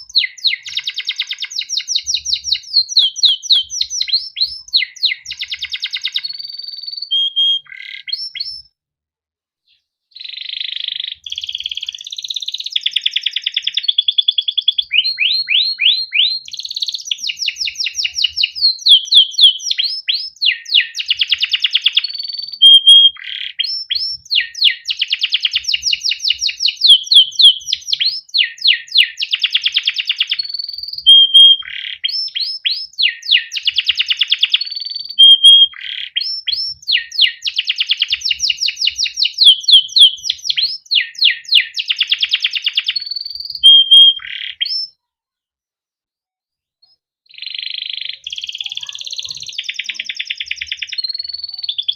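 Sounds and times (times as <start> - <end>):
canary singing: 0.0 - 8.7, 10.1 - 45.0, 46.8 - 51.9.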